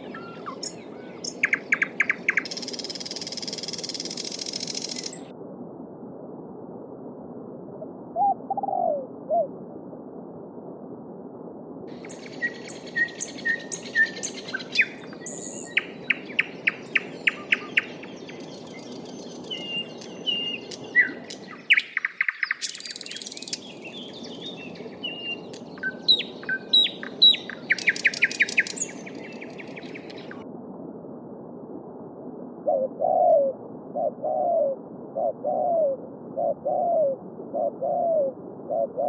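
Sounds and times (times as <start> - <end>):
songbirds singing: 0.0 - 5.3, 11.9 - 30.4.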